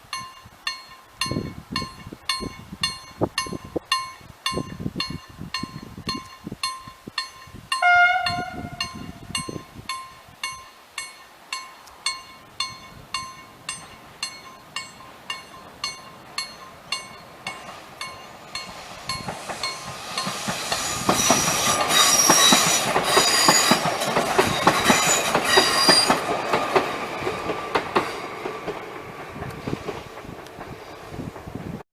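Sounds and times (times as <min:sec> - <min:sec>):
train passing: 0:00.0 - 0:31.8
train horn blast: 0:07.8 - 0:09.3
wheels squealing: 0:18.5 - 0:28.6.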